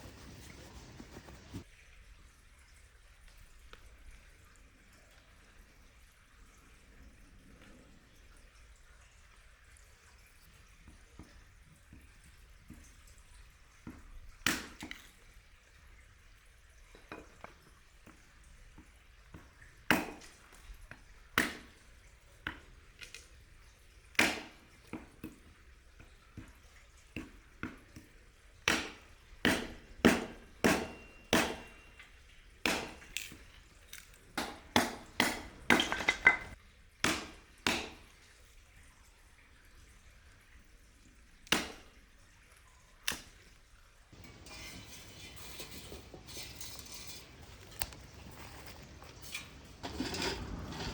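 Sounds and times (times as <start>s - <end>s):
sharp ringing knocks: 29.6s - 32.1s.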